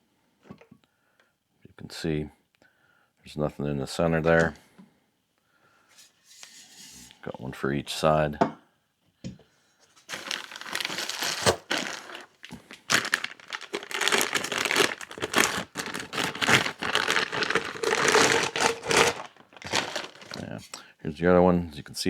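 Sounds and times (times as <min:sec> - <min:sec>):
packaging crinkling and rustling: 0:10.0 - 0:20.8.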